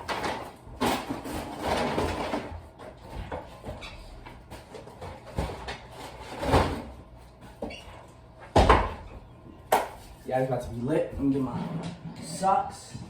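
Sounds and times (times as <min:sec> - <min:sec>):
knocks and rustles of handling: 0:00.0 - 0:09.1.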